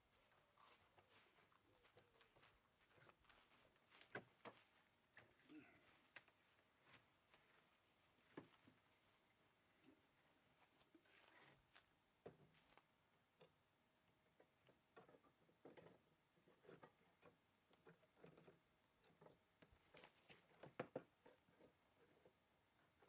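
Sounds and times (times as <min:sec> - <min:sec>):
faint small taps and clicks: 0:14.4 - 0:22.4.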